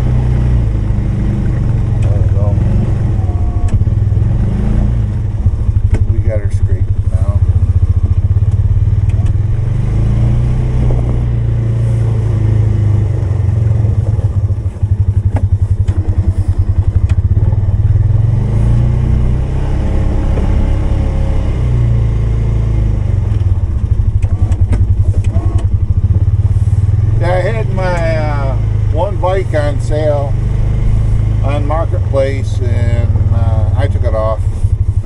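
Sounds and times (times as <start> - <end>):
atv engine pulsing: 0.0 - 35.0.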